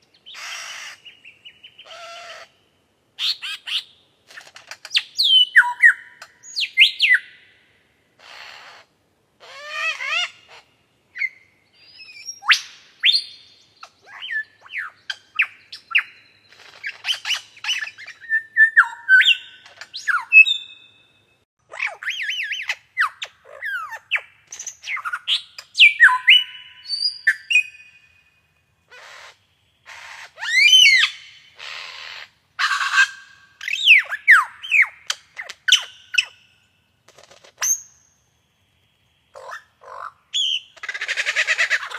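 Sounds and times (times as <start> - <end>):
harsh bird squawks: 0.3 - 1.1, 1.8 - 2.6, 8.2 - 10.7, 28.9 - 36.4, 39.3 - 41.9
birds chirping and whistling: 5.0 - 7.4, 11.2 - 21.1, 21.8 - 28.2, 29.0 - 36.4.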